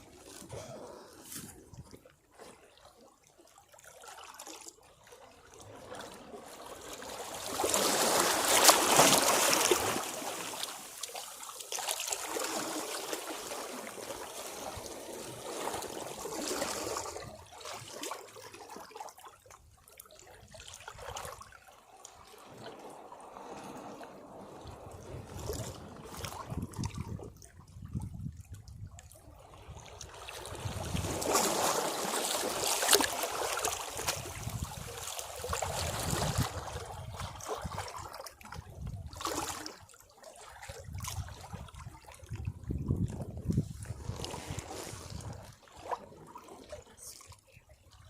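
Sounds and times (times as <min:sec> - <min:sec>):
sea waves crashing on rocks: 0:07.4 - 0:10.9
water trickling back over rocks: 0:42.4 - 0:47.2.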